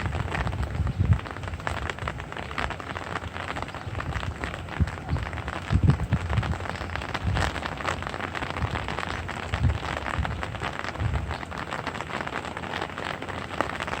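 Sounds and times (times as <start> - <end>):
low rumbles: 0.0 - 12.1
light rain falling: 0.0 - 14.0.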